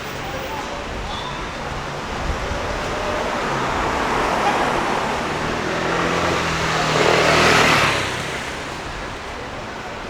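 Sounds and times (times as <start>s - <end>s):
traffic noise: 0.0s - 10.0s
vehicle driving past: 1.8s - 8.9s.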